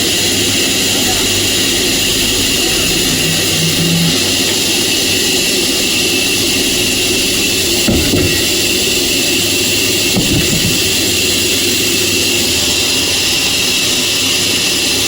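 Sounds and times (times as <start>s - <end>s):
sawmill machinery running: 0.0s - 15.0s
low hum: 1.5s - 8.9s.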